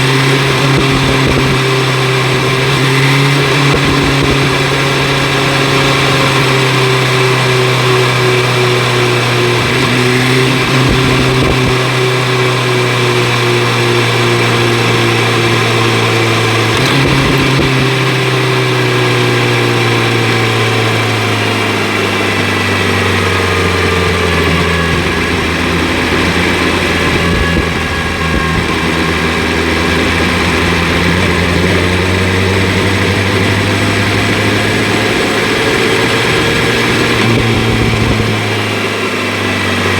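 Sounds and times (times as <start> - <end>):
motorcycle engine revving: 0.0 - 39.9
steady rushing noise: 22.2 - 39.9.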